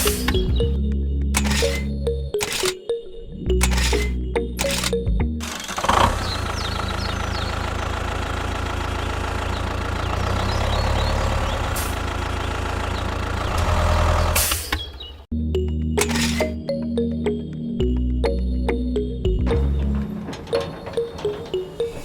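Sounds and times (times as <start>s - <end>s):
engine idling: 3.6s - 14.4s.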